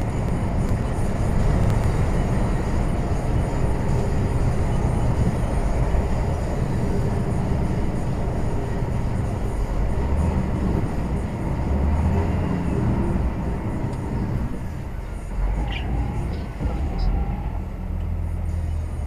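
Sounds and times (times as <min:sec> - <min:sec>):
lorry engine drone: 0:00.0 - 0:19.0
road rumble: 0:00.0 - 0:19.0.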